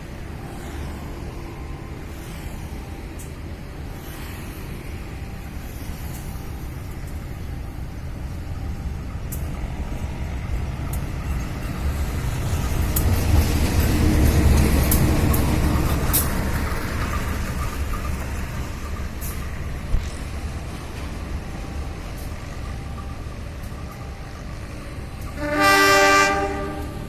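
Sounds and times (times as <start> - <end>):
diesel locomotive engine rumbling: 0.0 - 27.0.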